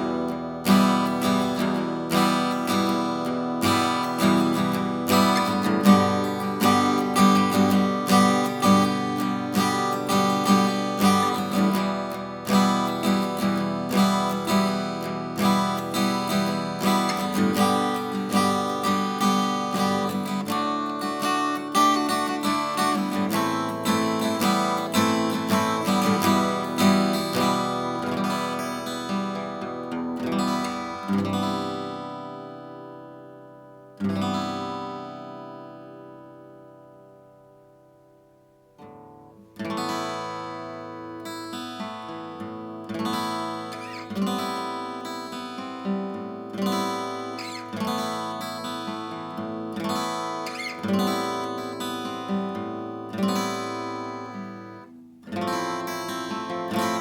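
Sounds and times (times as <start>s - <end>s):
acoustic guitar strumming chords: 0.0s - 57.0s.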